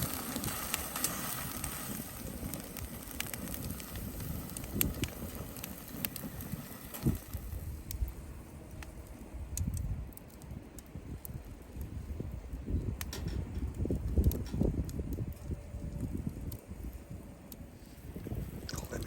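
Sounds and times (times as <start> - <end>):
soft hiss: 0.0 - 9.7
low steady rumble: 0.0 - 19.0
sharp pops of fire: 0.0 - 19.0
wood fire crackling: 0.0 - 19.0.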